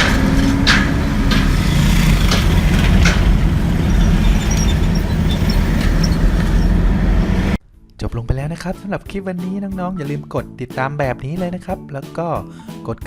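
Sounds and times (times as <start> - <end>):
train wheels clacking: 0.0 - 7.6
train rumbling: 0.0 - 8.5.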